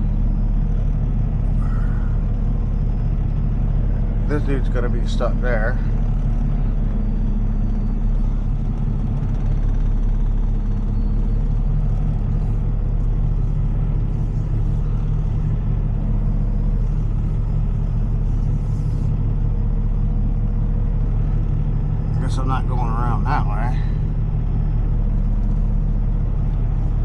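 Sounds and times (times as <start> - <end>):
diesel truck engine idling: 0.0 - 27.0.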